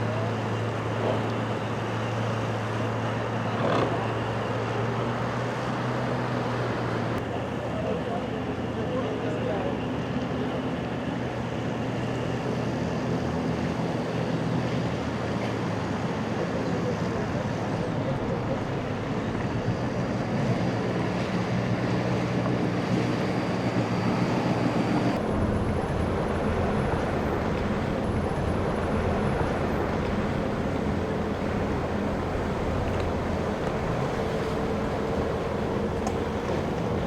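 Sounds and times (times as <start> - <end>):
boat engines running: 0.0 - 37.0
wind noise on microphone: 23.3 - 37.0.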